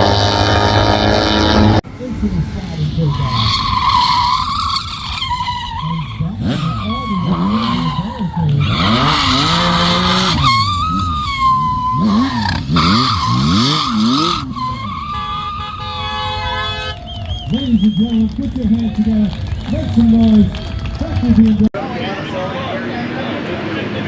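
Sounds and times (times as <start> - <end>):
motorcycle engine revving: 0.0 - 16.9
tires squealing on pavement: 2.8 - 21.6.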